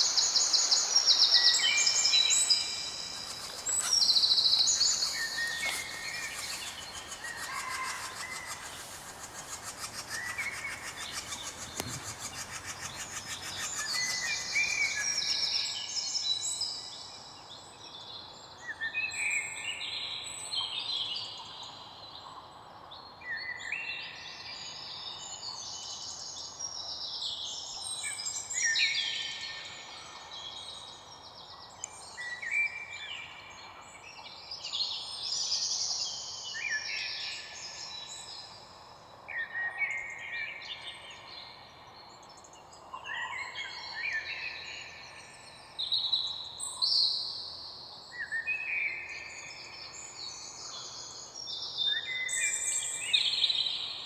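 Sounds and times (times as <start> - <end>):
faint steady hiss: 1.6 - 15.6
songbirds singing and chirping: 2.1 - 15.6.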